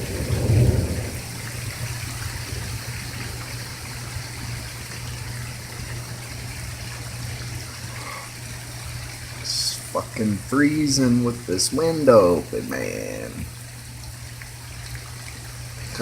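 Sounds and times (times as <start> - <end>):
low rumble of thunder: 0.0 - 5.3
steady rain falling: 0.0 - 16.0.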